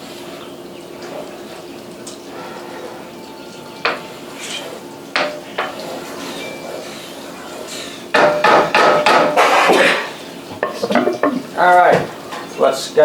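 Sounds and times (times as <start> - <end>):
utensils clattering: 1.0 - 12.8
cookware knocking: 8.2 - 12.2.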